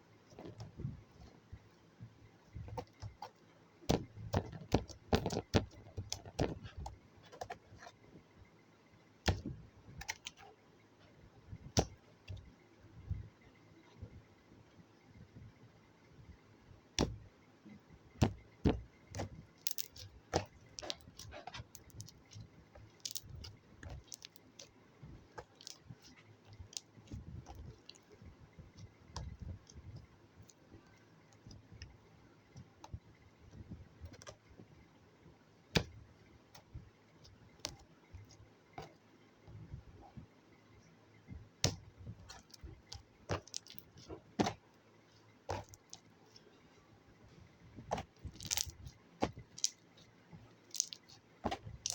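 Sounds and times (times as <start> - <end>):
slime squishing and clicking: 18.2 - 24.8, 25.4 - 28.2, 41.6 - 44.6, 45.5 - 46.0, 47.9 - 50.0, 50.7 - 51.9.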